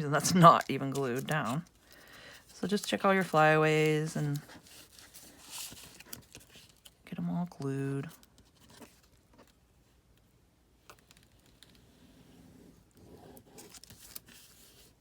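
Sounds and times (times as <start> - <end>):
paper rustling: 0.2 - 7.0, 13.3 - 15.0.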